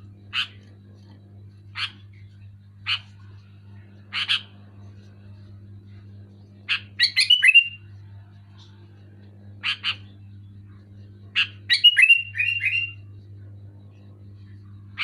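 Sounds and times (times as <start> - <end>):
faint low hum: 0.0 - 15.0
bulbul calling: 11.4 - 13.0.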